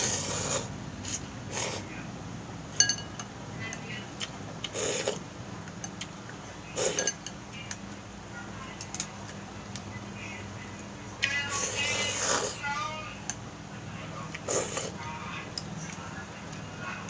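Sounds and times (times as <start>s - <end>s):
person eating noodles: 0.0s - 1.9s, 4.6s - 5.3s, 6.7s - 7.2s, 11.6s - 12.6s, 14.4s - 15.0s
low steady hum: 0.0s - 17.0s
utensils clinking against bowl: 2.7s - 3.9s, 6.8s - 7.8s.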